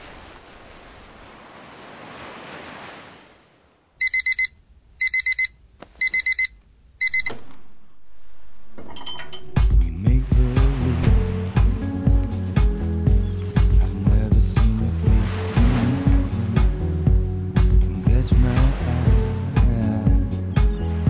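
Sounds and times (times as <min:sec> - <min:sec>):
wind and waves: 0:00.0 - 0:03.9, 0:10.1 - 0:21.0
digital alarm clock beeping: 0:04.0 - 0:07.3.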